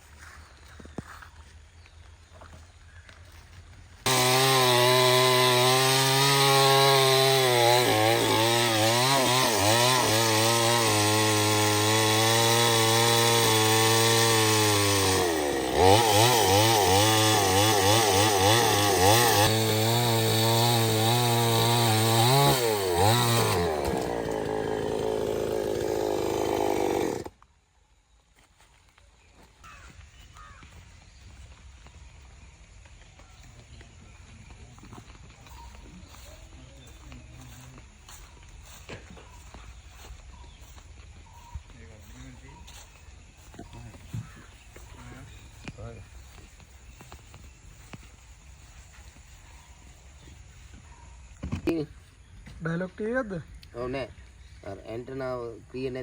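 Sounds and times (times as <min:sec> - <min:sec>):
chainsaw cutting wood: 0:04.0 - 0:27.5.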